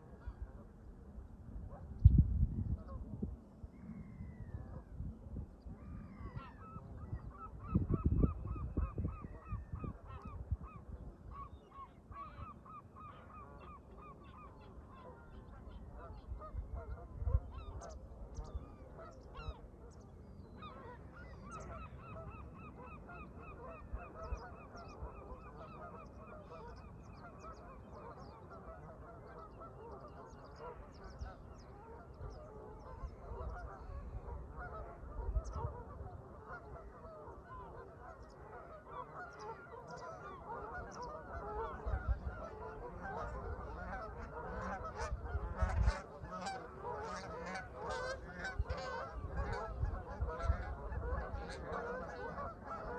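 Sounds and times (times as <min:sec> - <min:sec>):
wind rumble on microphone: 0:00.0 - 0:52.9
geese honking: 0:20.6 - 0:52.9.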